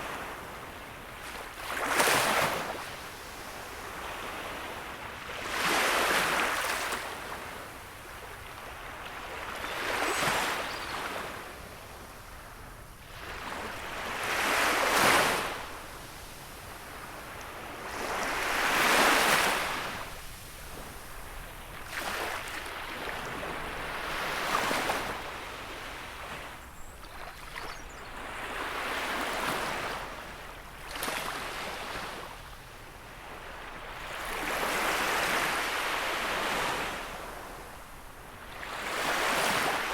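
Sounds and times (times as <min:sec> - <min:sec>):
gentle sea waves breaking: 0:08.2 - 0:12.0, 0:13.0 - 0:32.5.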